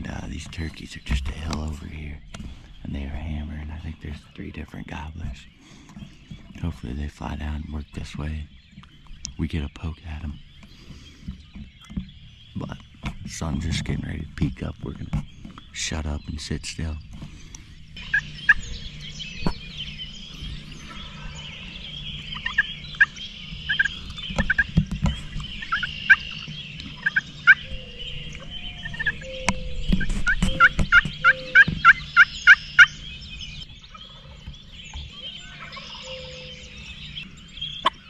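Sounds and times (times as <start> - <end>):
turkeys gobbling: 12.1 - 38.0.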